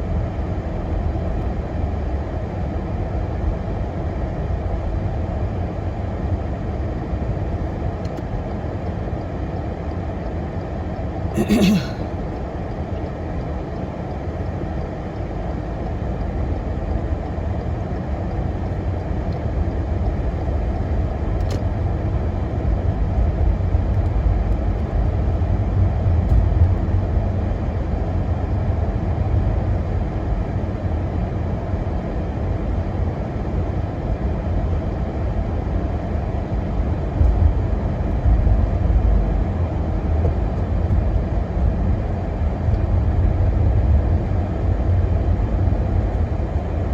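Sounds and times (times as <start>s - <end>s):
car engine and road noise: 35.6s - 46.9s.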